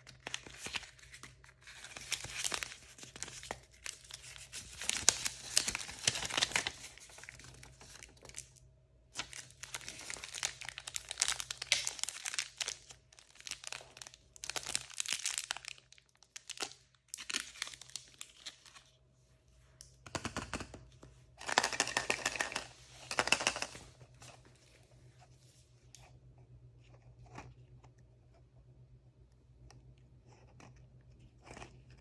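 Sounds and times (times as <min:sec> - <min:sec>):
plastic packaging tearing and crumpling: 0:00.0 - 0:18.9.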